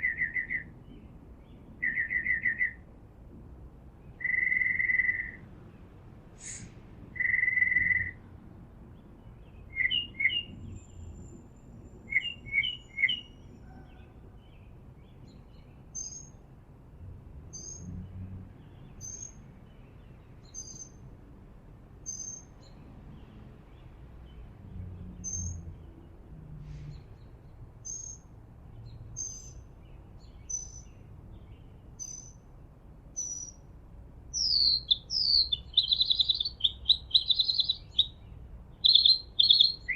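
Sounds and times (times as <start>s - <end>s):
birds whistling and chirping: 0.0s - 2.8s, 4.1s - 5.4s, 6.4s - 8.2s, 9.5s - 14.1s, 15.0s - 16.4s, 18.9s - 19.4s, 20.4s - 21.0s, 22.1s - 22.8s, 25.2s - 25.6s, 26.8s - 29.6s, 30.2s - 32.4s, 33.2s - 33.6s, 34.3s - 39.9s.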